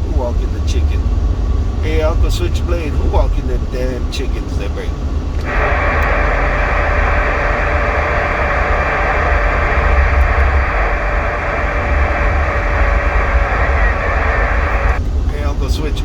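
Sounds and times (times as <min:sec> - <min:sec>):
vehicle engine rumble: 0:04.8 - 0:15.0
radio static: 0:05.4 - 0:15.0
road noise: 0:05.4 - 0:15.0.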